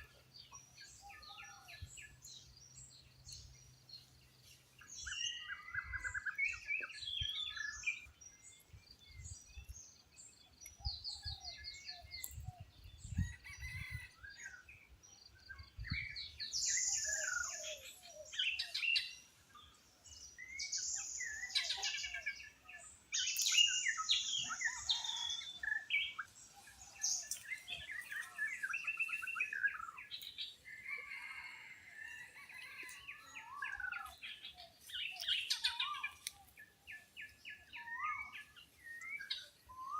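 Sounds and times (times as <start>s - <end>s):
birds chirping in chorus: 0.0s - 39.9s
buzzy bird calls: 32.8s - 38.6s.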